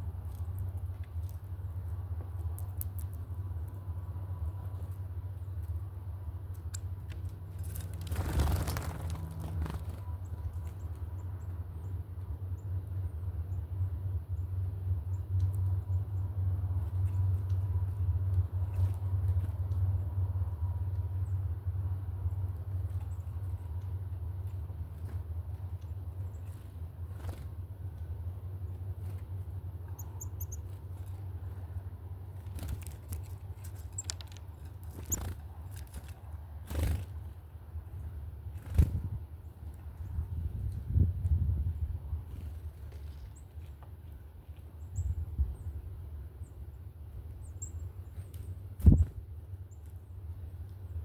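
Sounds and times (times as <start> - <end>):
steady low rumble: 0.0 - 51.0
small bird chirping: 29.8 - 31.3, 32.5 - 36.0, 44.8 - 45.7, 47.3 - 51.0.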